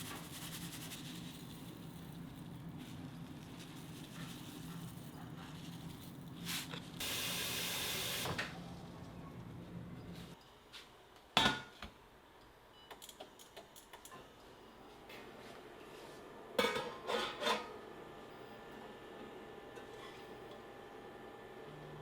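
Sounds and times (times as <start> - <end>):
hiss: 7.0 - 8.4.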